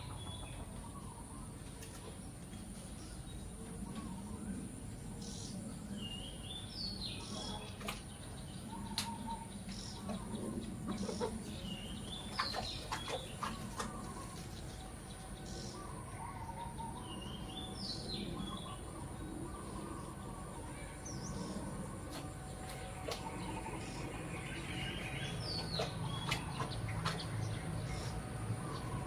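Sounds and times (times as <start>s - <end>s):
steady high whine: 14.0s - 29.0s.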